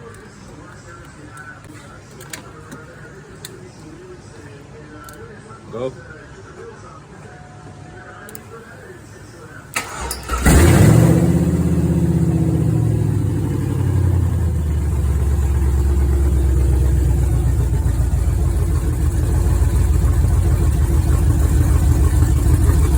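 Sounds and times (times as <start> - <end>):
truck engine idling loudly: 9.9 - 22.9.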